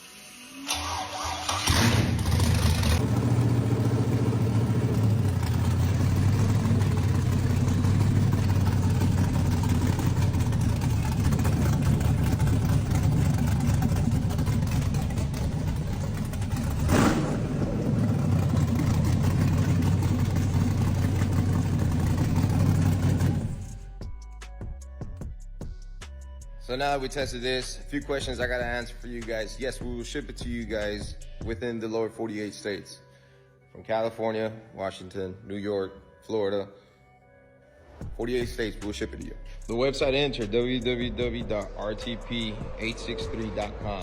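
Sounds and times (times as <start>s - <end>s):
engine cranking and idling: 0.7s - 23.9s, 40.0s - 44.0s.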